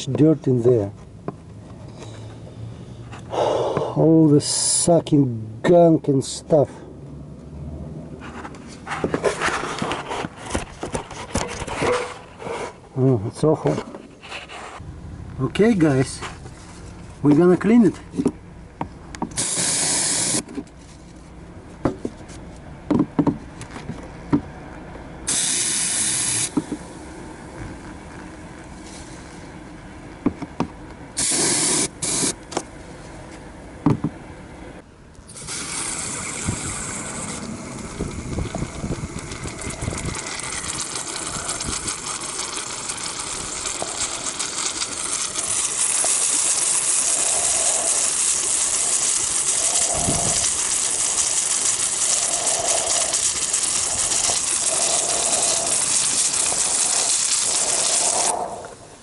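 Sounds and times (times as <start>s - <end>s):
aerosol can spraying: 19.4s - 20.5s, 25.3s - 26.8s, 31.2s - 32.4s, 35.3s - 37.5s, 43.8s - 58.6s.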